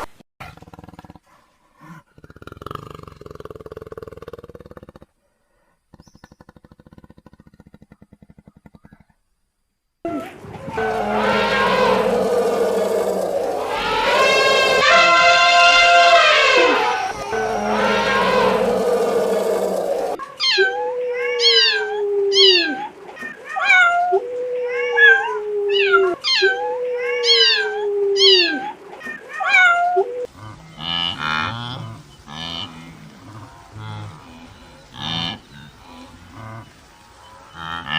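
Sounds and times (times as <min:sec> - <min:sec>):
low pulsing animal calls: 0:10.1 - 0:22.8
animal noisy cry: 0:10.1 - 0:24.1
short falling animal cries: 0:10.2 - 0:20.8.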